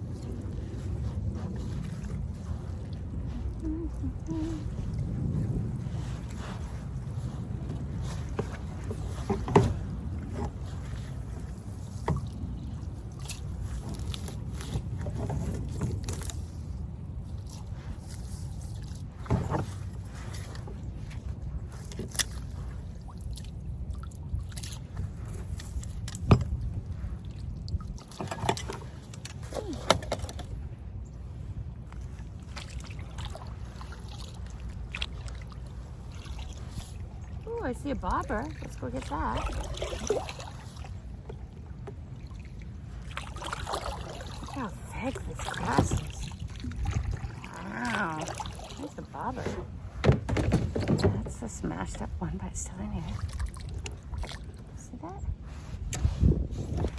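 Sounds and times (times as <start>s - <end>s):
water against kayak: 0.0s - 56.9s
wind rumble on microphone: 0.0s - 56.9s
knocks against kayak: 8.4s - 10.6s, 49.4s - 51.3s.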